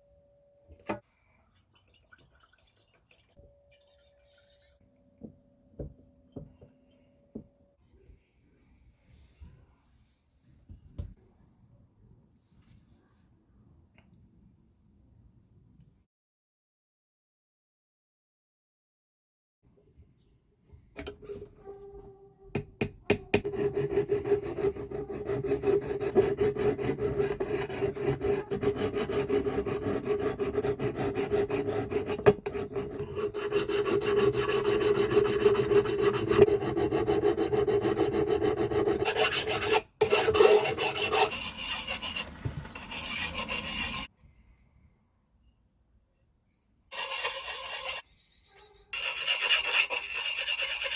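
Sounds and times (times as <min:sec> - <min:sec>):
hand file rasping on a hatchet: 0:23.1 - 0:44.1, 0:46.9 - 0:48.0, 0:49.0 - 0:50.9.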